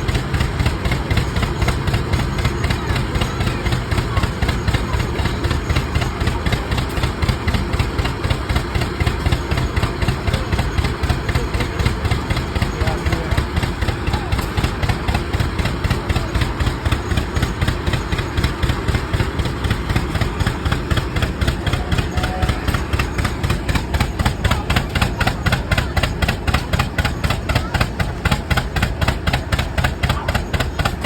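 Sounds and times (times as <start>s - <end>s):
tractor engines exhaust beat: 0.0s - 31.0s.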